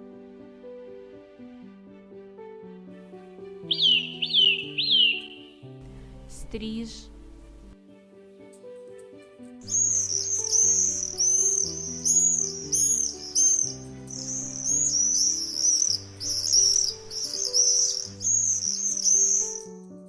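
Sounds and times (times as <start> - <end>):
soft background music: 0.0 - 20.0
swifts screaming: 3.6 - 7.7, 9.7 - 19.8.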